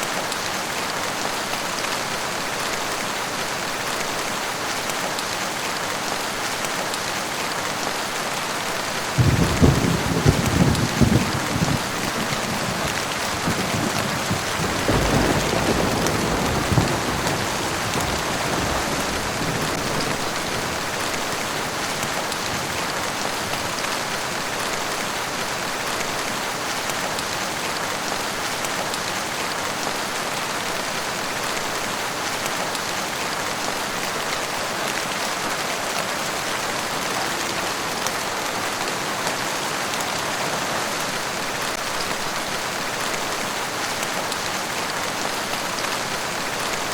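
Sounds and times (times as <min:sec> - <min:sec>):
rain pattering: 0:00.0 - 0:46.9
low rumble of thunder: 0:09.2 - 0:23.3.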